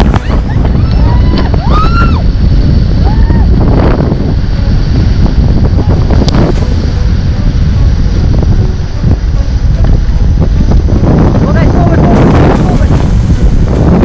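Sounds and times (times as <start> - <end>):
rushing whitewater: 0.0 - 14.0
wind buffeting microphone: 0.0 - 14.0
people crying out: 0.1 - 2.3.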